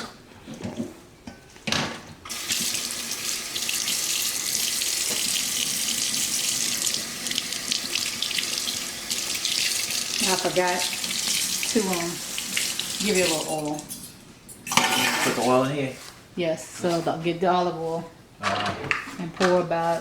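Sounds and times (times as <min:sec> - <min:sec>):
tap water running into sink: 0:02.3 - 0:13.9.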